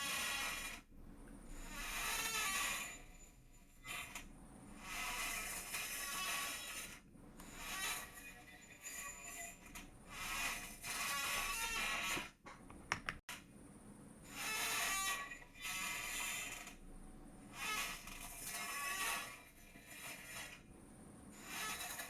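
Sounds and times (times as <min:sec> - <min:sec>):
sharp clicks: 0:12.7 - 0:13.2.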